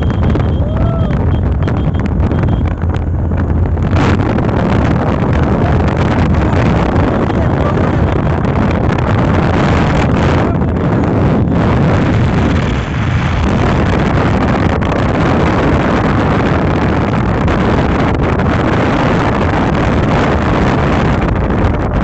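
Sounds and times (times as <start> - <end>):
motorcycle engine running: 0.0 - 22.0
wind rushing over microphone: 0.0 - 22.0.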